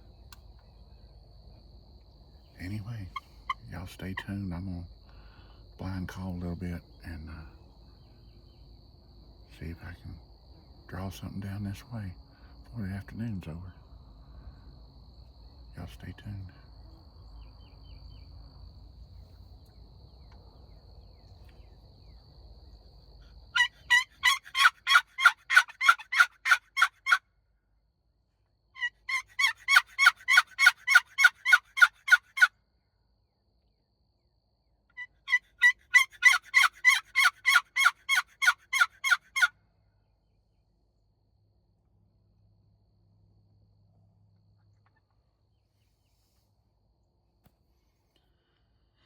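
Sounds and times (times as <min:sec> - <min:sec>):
turkey call yelps: 0:23.5 - 0:27.2, 0:28.8 - 0:32.5, 0:34.9 - 0:39.5.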